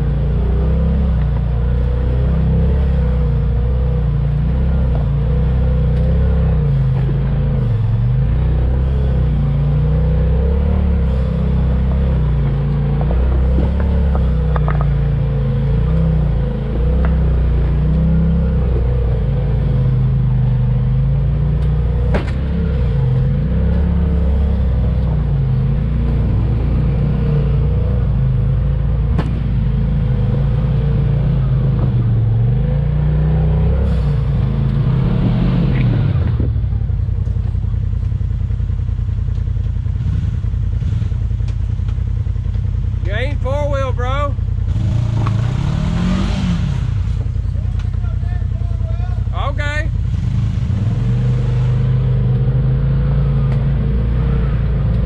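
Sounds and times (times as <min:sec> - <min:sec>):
off-road vehicle engine revving: 0:00.0 - 0:55.0
knocks and clatter: 0:12.4 - 0:15.1.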